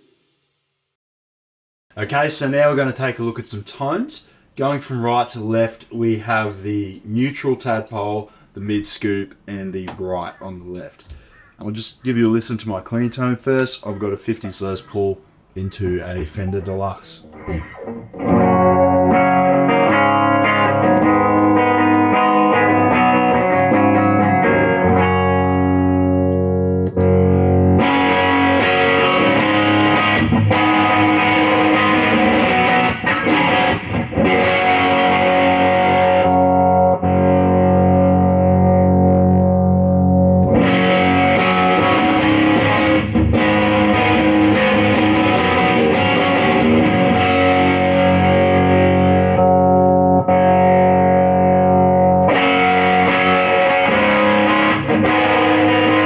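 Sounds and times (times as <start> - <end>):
electric guitar chords: 17.2 - 56.0.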